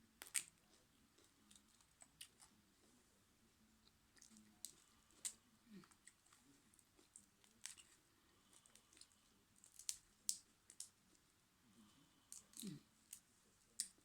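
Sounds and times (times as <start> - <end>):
person chewing food: 0.2 - 2.6, 3.8 - 11.0.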